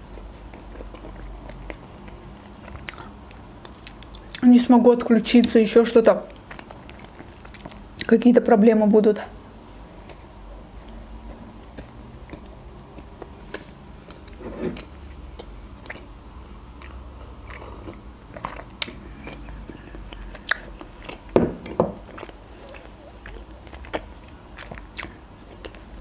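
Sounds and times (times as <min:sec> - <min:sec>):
chewing with wet mouth clicks: 0:00.2 - 0:04.4, 0:06.3 - 0:08.2, 0:10.8 - 0:14.4, 0:15.3 - 0:26.0.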